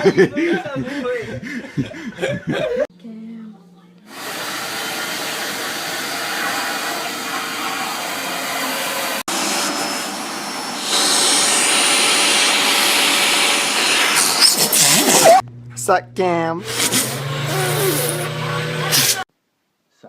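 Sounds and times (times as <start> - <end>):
vacuum cleaner running: 4.1 - 15.4, 16.5 - 19.3.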